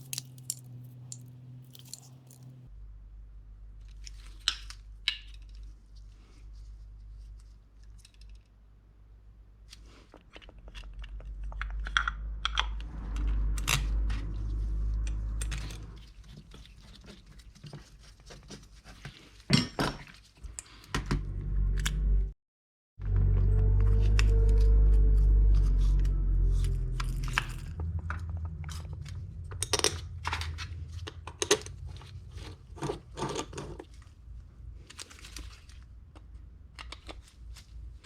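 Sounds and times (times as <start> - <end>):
small metal parts clinking: 0.0 - 2.6
low steady hum: 0.0 - 7.6, 10.6 - 18.1, 20.4 - 22.4, 23.0 - 36.4.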